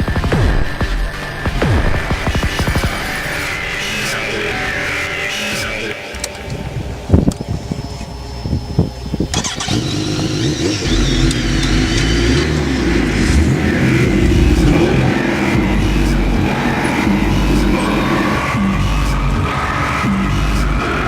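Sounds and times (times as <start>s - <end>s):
vehicle engine running hard: 9.3s - 21.0s.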